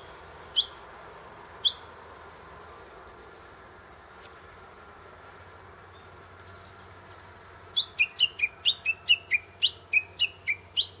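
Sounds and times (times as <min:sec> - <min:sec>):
bird calling sharp notes: 0:00.0 - 0:00.8, 0:07.7 - 0:11.0.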